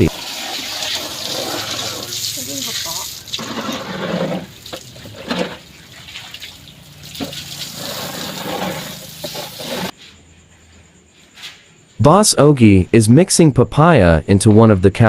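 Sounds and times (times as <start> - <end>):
water splashing and sloshing: 0.0 - 9.9.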